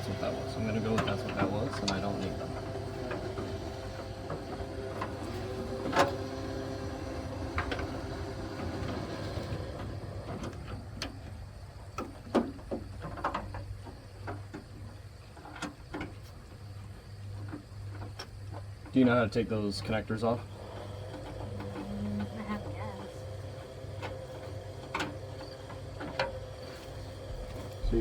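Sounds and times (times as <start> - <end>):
steady low hum: 0.0 - 28.0
parts clicking and knocking: 9.8 - 19.0, 19.8 - 28.0.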